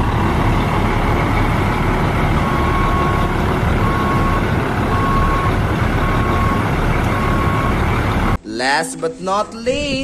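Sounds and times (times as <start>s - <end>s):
heavy truck engine rumbling: 0.0s - 8.5s
reversing alarm beeps: 2.4s - 7.8s.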